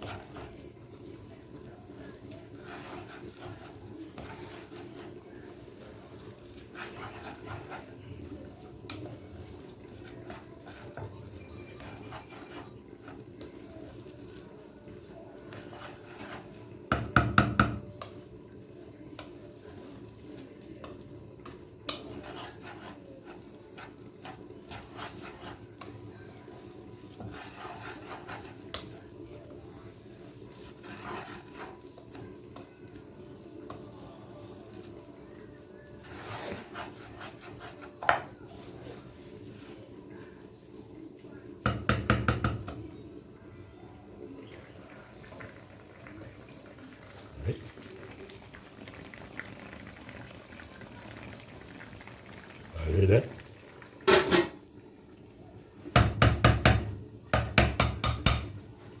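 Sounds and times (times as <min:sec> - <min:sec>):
spoon scraping in cooking pot: 0:00.0 - 0:18.3, 0:18.9 - 0:40.6
knock: 0:16.9 - 0:17.8, 0:41.7 - 0:42.7, 0:56.0 - 0:58.5
taps on pot: 0:16.9 - 0:17.8, 0:41.7 - 0:42.8, 0:56.0 - 0:58.6.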